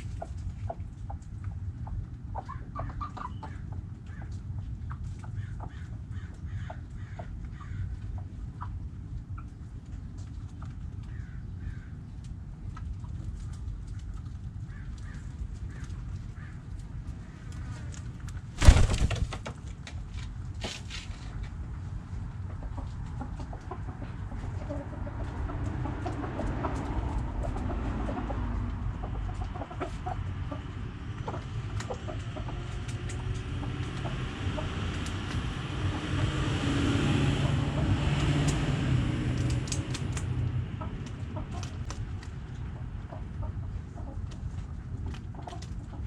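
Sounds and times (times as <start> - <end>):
hens clucking: 0.0 - 10.8, 22.2 - 35.1, 40.7 - 46.0
steady low rumble: 21.5 - 46.0.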